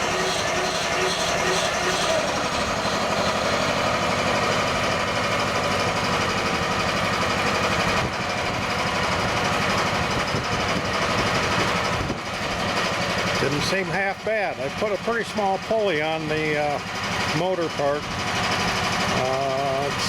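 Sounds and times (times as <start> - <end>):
mower blade mechanical clatter: 0.0 - 6.6
excavator engine running: 0.0 - 20.0.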